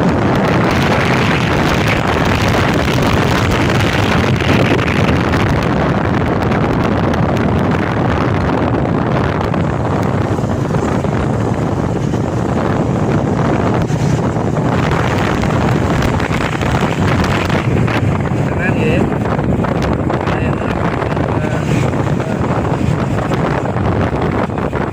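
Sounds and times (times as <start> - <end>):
vehicle rumble: 0.0 - 24.9
wind buffeting microphone: 0.0 - 24.9.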